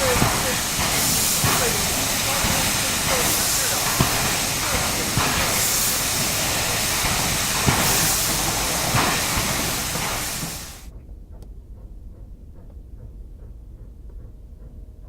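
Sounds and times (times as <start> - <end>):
steam locomotive hissing: 0.0 - 10.9.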